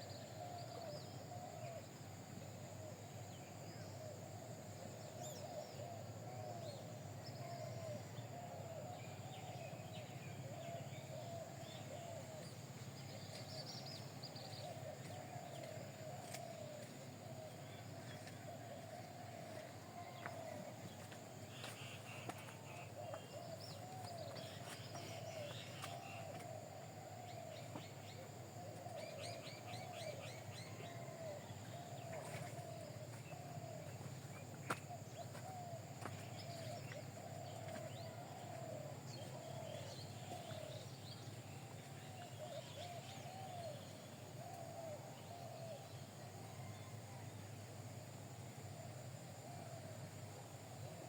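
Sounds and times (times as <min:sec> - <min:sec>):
birds calling: 0:10.4 - 0:45.8.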